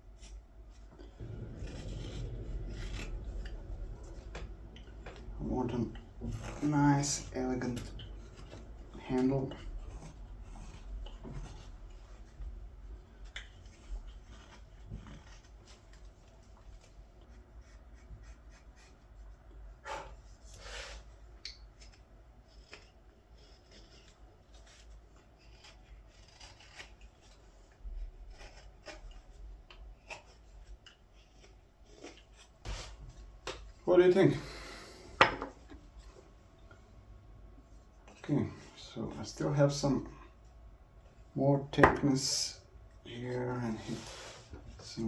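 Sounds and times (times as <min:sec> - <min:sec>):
knife shaving strokes: 0:00.0 - 0:19.4, 0:20.4 - 0:36.3
knife scraping green wood: 0:21.8 - 0:33.0.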